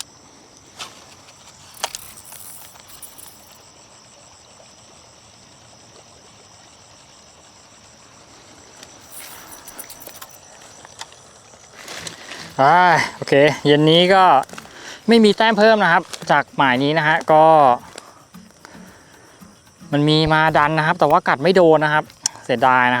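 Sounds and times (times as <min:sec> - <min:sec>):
insects chirring: 0:00.0 - 0:23.0
brief rustling hiss: 0:00.6 - 0:03.5, 0:08.7 - 0:20.0
sharp clicks: 0:14.1 - 0:22.6.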